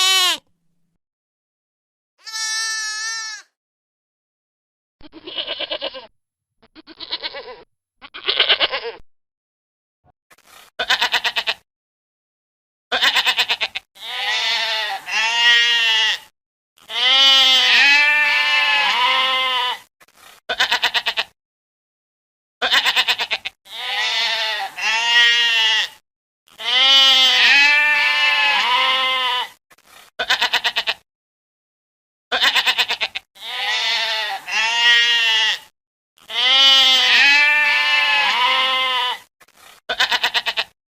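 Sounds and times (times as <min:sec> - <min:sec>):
goats bleating: 0:00.0 - 0:00.4, 0:02.2 - 0:03.5, 0:05.0 - 0:06.1, 0:06.7 - 0:09.0, 0:10.8 - 0:11.6, 0:12.9 - 0:19.9, 0:20.5 - 0:21.3, 0:22.6 - 0:29.6, 0:30.2 - 0:31.0, 0:32.3 - 0:39.3, 0:39.9 - 0:40.8.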